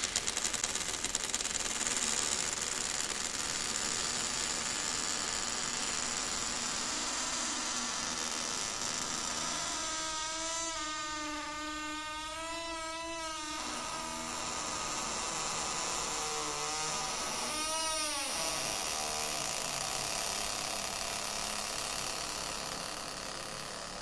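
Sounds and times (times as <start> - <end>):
door hinge creaking: 5.2 - 24.0.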